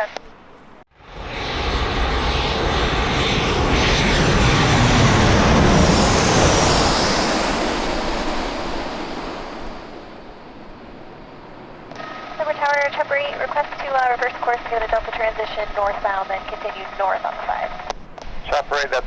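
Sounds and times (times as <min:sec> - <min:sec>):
high jet engine whine: 0:00.0 - 0:19.0
jet airliner passing: 0:00.0 - 0:19.0.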